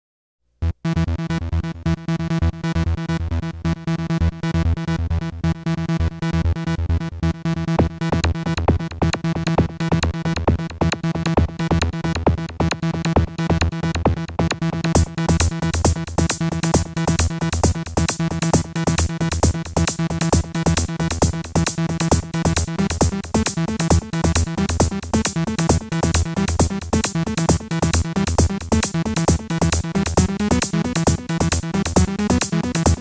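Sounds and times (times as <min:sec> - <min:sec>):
pulsing synth bass line: 0:00.9 - 0:33.0
steady keyboard notes: 0:15.0 - 0:33.0.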